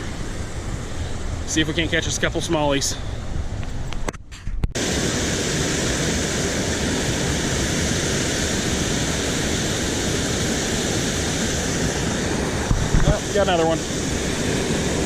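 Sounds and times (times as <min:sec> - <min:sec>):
water rushing over spillway: 0:04.8 - 0:15.0.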